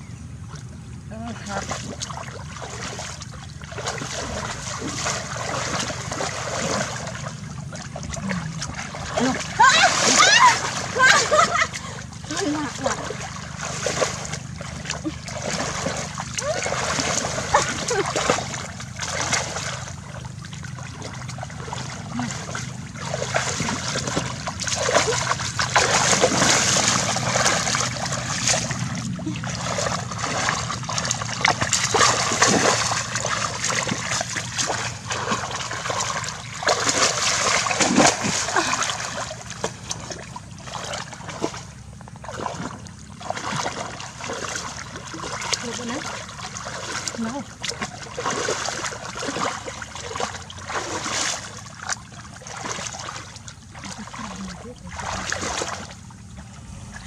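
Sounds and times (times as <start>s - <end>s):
water splashing and sloshing: 0.0s - 57.0s.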